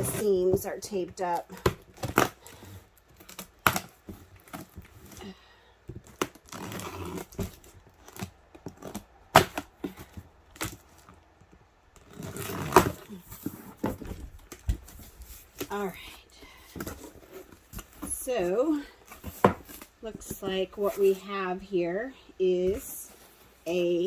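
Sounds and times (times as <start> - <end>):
cardboard cracking: 1.4 - 21.2
packing tape tearing: 6.0 - 11.1, 12.0 - 13.6.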